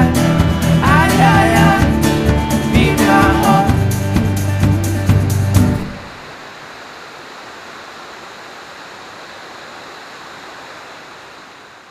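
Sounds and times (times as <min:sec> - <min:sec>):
song: 0:00.0 - 0:06.1
waterfall roaring: 0:04.5 - 0:11.9.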